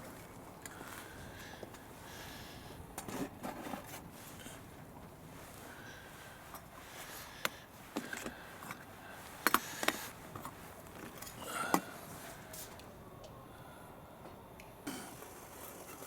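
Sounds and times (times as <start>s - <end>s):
faint steady background noise: 0.0s - 16.0s.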